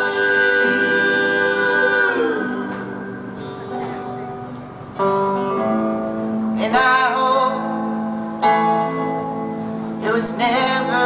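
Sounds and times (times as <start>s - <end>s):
person singing: 0.0s - 3.0s, 6.6s - 8.7s, 10.0s - 11.0s
plucked guitar: 0.0s - 11.0s.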